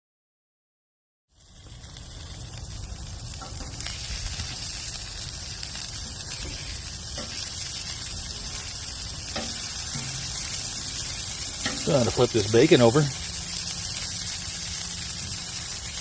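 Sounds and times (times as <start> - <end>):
sausage sizzling on a griddle: 1.3 - 16.0.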